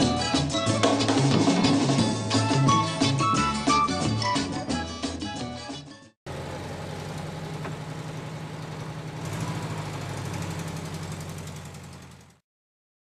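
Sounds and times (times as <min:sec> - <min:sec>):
car engine idling: 0:06.3 - 0:12.4.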